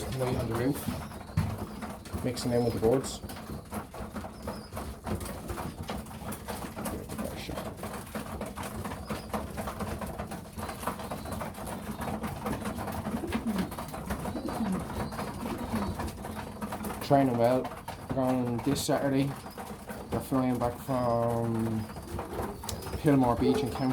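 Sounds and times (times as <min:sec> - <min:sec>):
pigeons cooing: 0:00.0 - 0:23.9.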